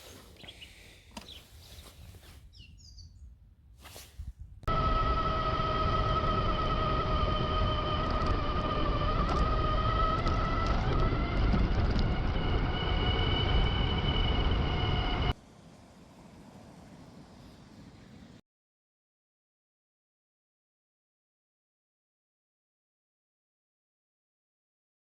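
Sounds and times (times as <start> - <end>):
wind rush: 3.9 - 18.4
electric motorbike motor whine: 4.7 - 15.4.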